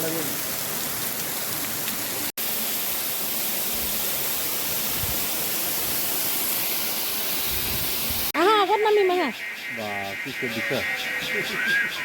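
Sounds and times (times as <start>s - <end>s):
falling water rushing: 0.0s - 8.4s.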